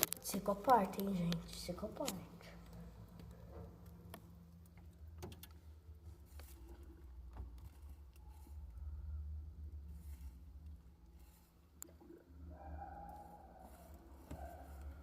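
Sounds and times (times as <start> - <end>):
faint clicks and taps: 0.0 - 8.5
faint low hum: 0.0 - 15.0.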